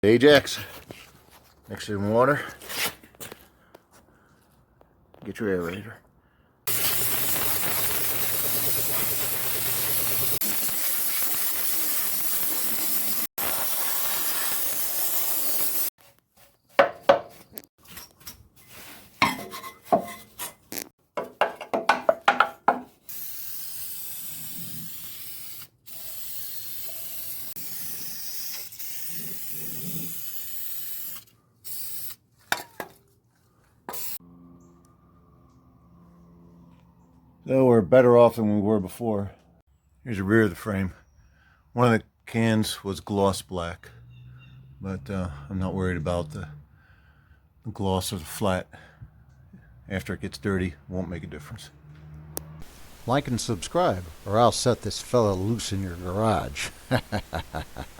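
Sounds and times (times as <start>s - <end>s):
aerosol can spray hiss: 6.7s - 15.9s, 23.1s - 32.2s, 33.9s - 34.2s, 52.6s - 57.9s
sprayer hissing: 6.7s - 15.9s, 52.6s - 57.9s
rust scraping: 13.0s - 23.0s, 52.4s - 57.9s.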